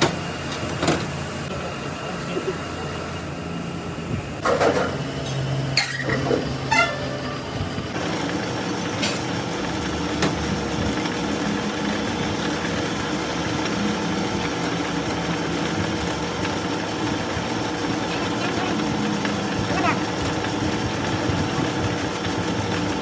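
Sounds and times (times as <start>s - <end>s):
machine humming: 5.0s - 23.0s.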